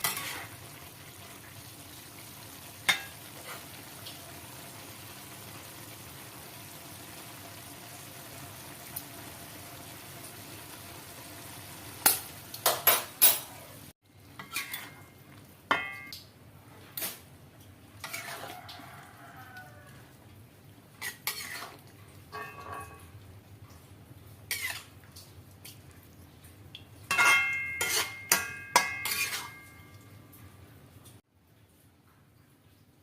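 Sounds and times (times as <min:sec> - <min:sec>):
food sizzling in a pan: 0:00.0 - 0:16.1, 0:17.0 - 0:30.2
dishes and cutlery clinking: 0:02.9 - 0:03.6, 0:12.1 - 0:13.6, 0:14.4 - 0:15.1, 0:15.7 - 0:16.2, 0:21.0 - 0:23.1, 0:27.1 - 0:30.2
utensil clanking against pan: 0:22.3 - 0:23.1, 0:27.1 - 0:29.8.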